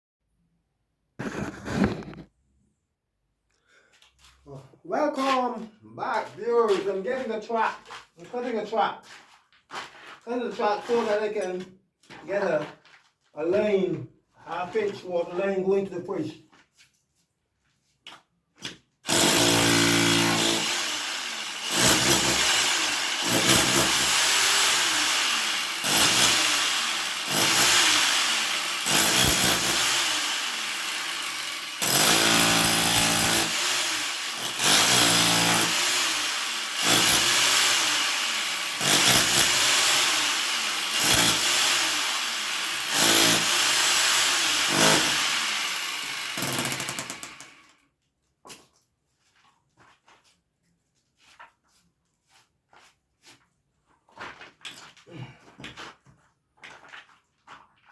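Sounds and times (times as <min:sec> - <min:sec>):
power tool cutting: 0:19.1 - 0:47.7.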